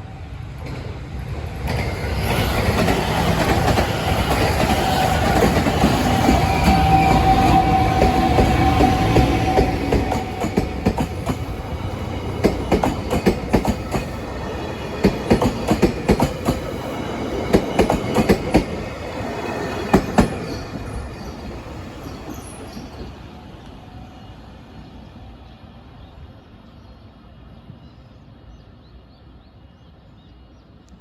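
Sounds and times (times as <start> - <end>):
train wheels clacking on rails: 0.6 - 23.2.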